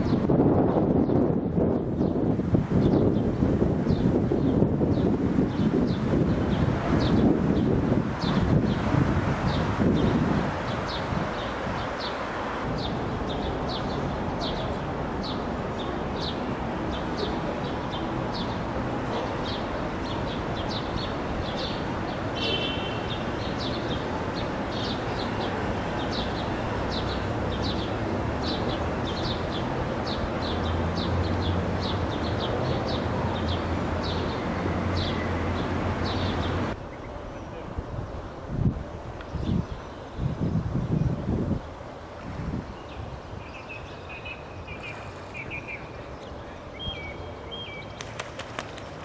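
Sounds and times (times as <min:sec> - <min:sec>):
outdoor background noise: 0:00.0 - 0:49.0.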